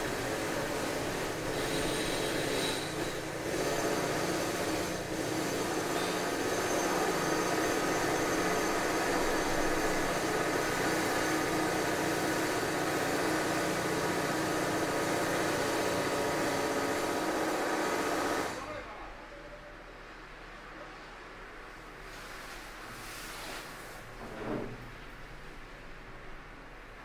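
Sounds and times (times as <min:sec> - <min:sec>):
construction machinery running: 0:00.0 - 0:18.7.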